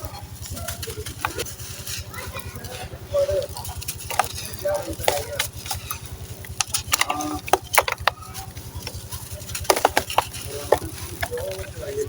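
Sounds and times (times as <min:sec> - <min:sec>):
sand cement crunching by hand: 0:00.0 - 0:12.0
steady low hum: 0:00.0 - 0:12.0.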